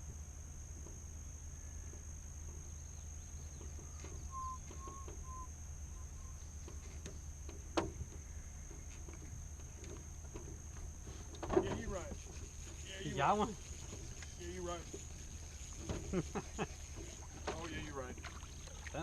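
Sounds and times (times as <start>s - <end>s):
bird call notes: 3.6s - 6.6s
high-pitched hum: 3.9s - 6.7s.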